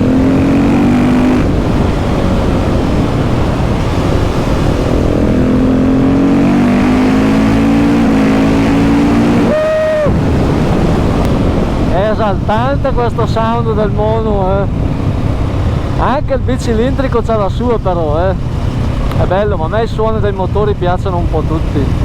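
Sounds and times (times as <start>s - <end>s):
motorcycle engine revving: 0.0s - 16.2s
wind noise on microphone: 0.0s - 22.0s.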